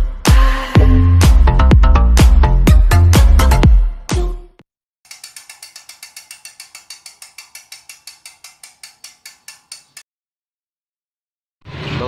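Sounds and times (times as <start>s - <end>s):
rapid mechanical clicking: 5.1s - 10.0s.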